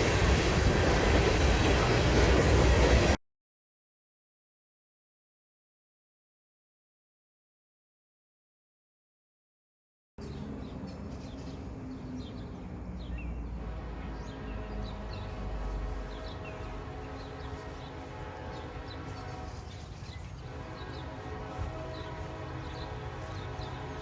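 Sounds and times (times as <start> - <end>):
diesel locomotive rumble: 0.0 - 3.2, 10.2 - 24.0
birds chirping: 10.2 - 24.0.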